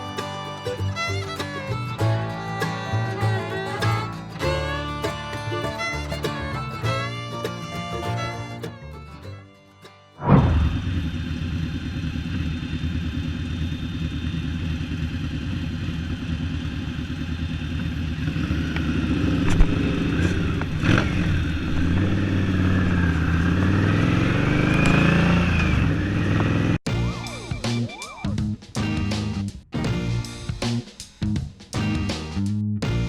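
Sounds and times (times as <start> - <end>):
motorcycle engine running: 10.5 - 32.1.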